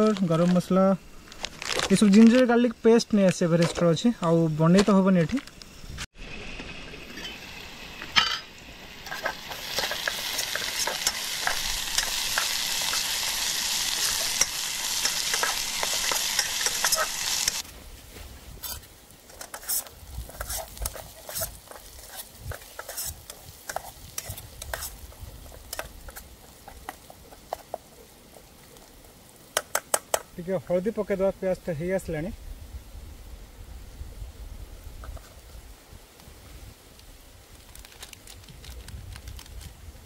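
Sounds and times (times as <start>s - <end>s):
food sizzling in a pot: 6.1s - 17.7s, 18.6s - 30.6s.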